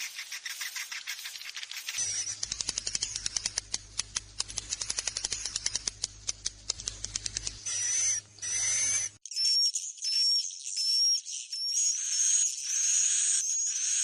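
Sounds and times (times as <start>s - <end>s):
bird dry clicks: 0.4s - 7.6s
high thin bird chirps: 6.8s - 14.0s.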